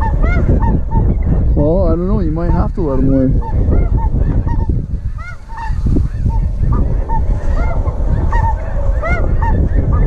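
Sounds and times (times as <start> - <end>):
geese honking: 0.0 - 1.5, 2.8 - 10.0
wind rumble on microphone: 0.0 - 10.0.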